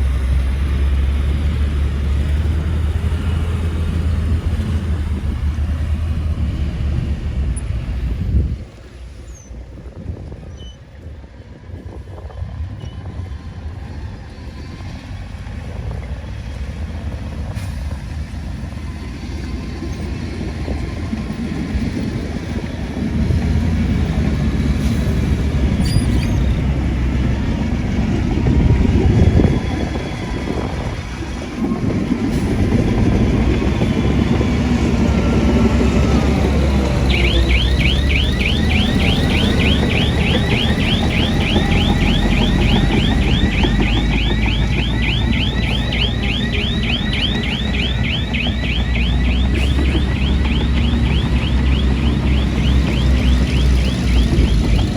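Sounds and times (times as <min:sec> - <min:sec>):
heavy machinery diesel engine rumbling: 0:00.0 - 0:54.9
electronic warble: 0:36.7 - 0:54.9.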